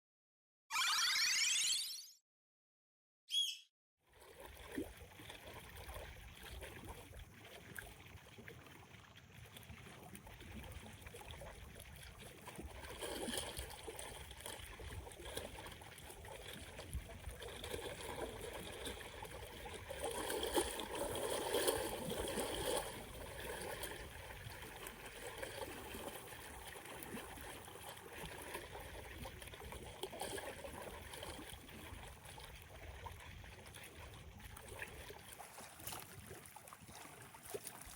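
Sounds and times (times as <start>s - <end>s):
waves lapping on shore: 34.6s - 37.9s.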